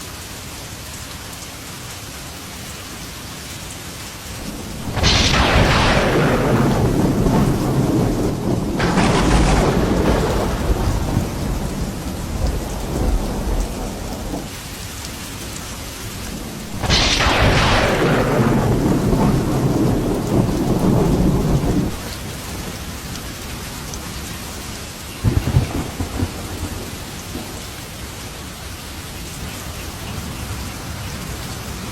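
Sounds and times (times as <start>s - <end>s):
steady rain: 0.0s - 31.9s
thunder cracks and rumbles: 4.5s - 14.6s, 16.2s - 22.2s, 25.2s - 27.8s
short crackle: 4.8s - 10.7s, 16.7s - 22.0s.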